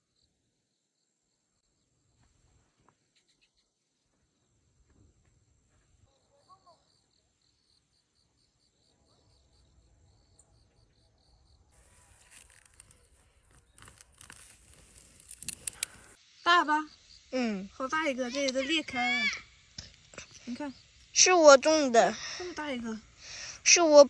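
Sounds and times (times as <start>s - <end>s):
faint insect chirping: 0.0s - 24.0s
rustling: 11.8s - 16.2s
sharp clicks: 11.8s - 16.2s.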